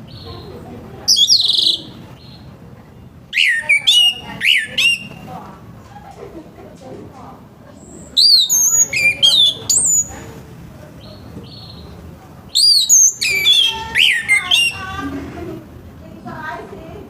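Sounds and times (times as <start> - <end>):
thrush singing: 3.2 - 5.4, 8.0 - 10.4, 12.5 - 15.6.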